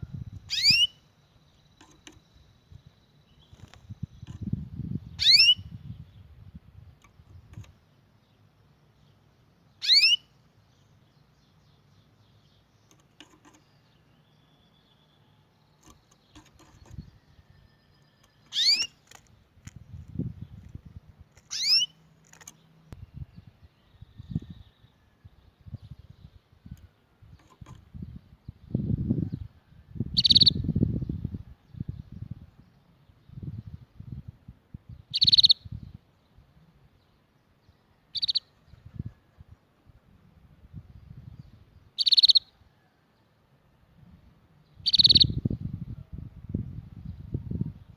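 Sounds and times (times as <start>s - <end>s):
canary singing trills: 0.0s - 19.2s, 20.0s - 34.0s, 34.9s - 36.4s, 37.0s - 39.4s, 40.8s - 43.0s, 44.5s - 45.8s
canary call notes: 0.5s - 1.0s, 5.2s - 5.6s, 9.8s - 10.3s, 18.5s - 19.0s, 21.5s - 22.0s, 30.2s - 30.6s, 35.1s - 35.6s, 38.1s - 38.5s, 42.0s - 42.6s, 44.8s - 45.4s.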